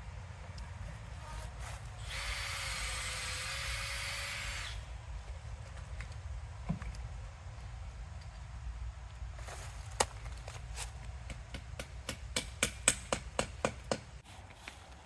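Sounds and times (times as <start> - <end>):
drill boring into wood: 2.0 - 4.8.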